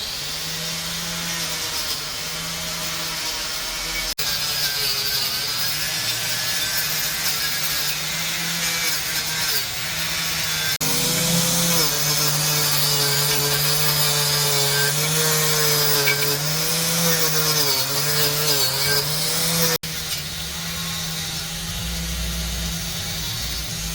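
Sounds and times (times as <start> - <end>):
rasping grinding noise: 0.0 - 23.9
motor running: 10.1 - 23.9.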